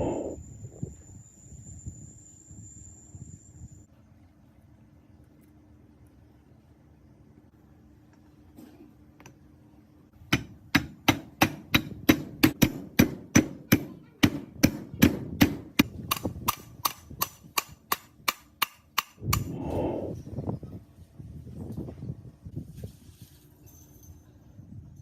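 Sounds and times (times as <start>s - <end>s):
hammer striking metal: 10.3s - 19.5s.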